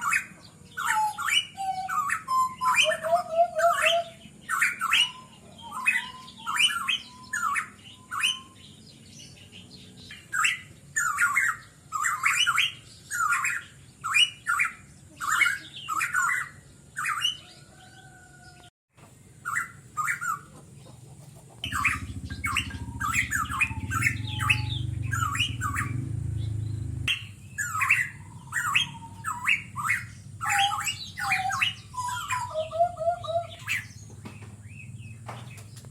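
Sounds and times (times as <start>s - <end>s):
bird squawking calls: 0.0s - 8.6s, 19.4s - 20.6s, 21.6s - 35.7s
low rumble: 21.6s - 30.5s
high-pitched whine: 21.7s - 27.4s.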